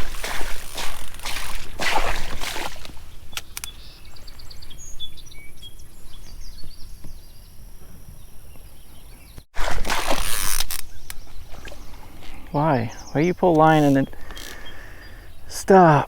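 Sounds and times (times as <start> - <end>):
low outdoor background: 0.0 - 16.0
small birds chirping: 2.7 - 9.5, 10.6 - 16.0.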